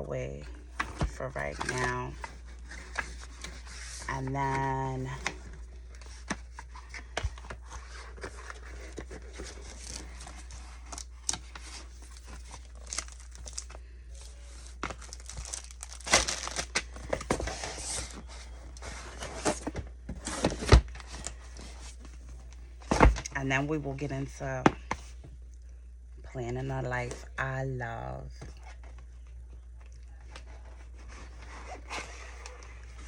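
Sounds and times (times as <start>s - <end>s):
packaging crinkling and tearing: 5.2s - 21.6s.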